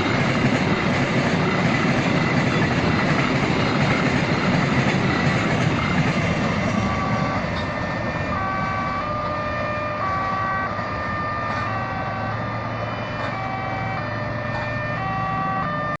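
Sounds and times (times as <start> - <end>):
passing train: 0.0 - 16.0.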